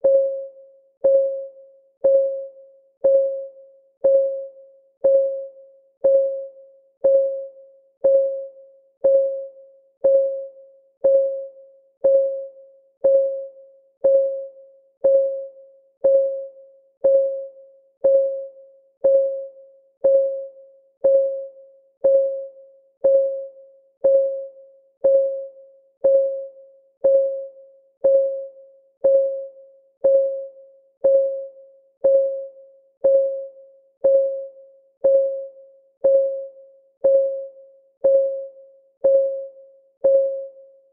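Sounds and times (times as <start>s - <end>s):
timer ticking: 1.0s - 40.6s.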